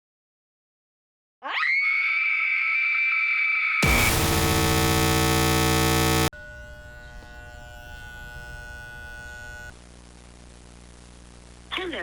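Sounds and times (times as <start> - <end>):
distorted electronic scare sting: 3.8 - 6.3
low hum with held tones: 3.8 - 6.3.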